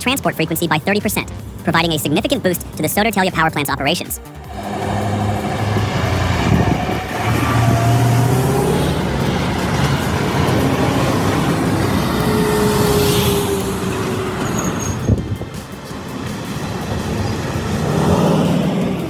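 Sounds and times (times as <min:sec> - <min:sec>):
road and tyre noise: 0:00.0 - 0:19.0
truck engine under load: 0:04.2 - 0:19.0.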